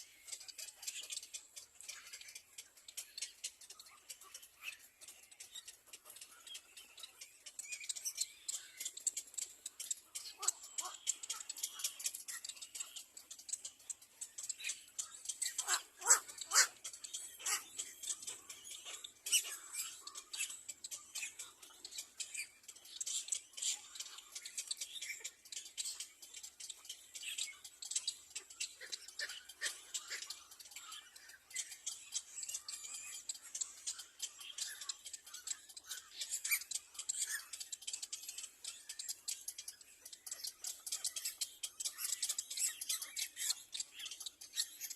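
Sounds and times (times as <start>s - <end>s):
nestling birds cheeping: 0.0s - 44.9s.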